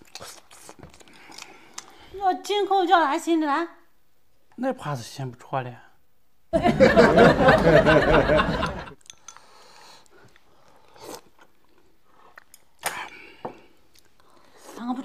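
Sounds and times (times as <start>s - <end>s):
person chewing wetly: 0.0s - 2.0s, 9.0s - 12.9s.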